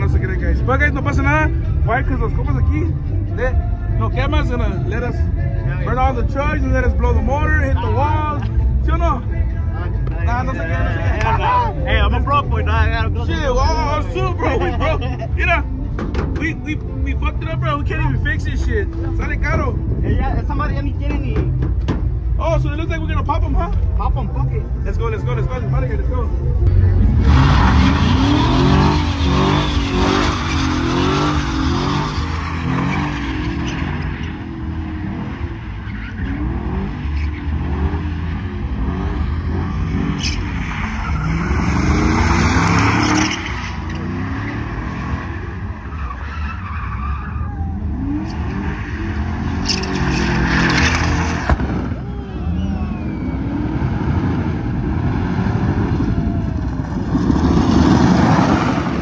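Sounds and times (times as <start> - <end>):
truck engine revving: 26.6 - 59.0.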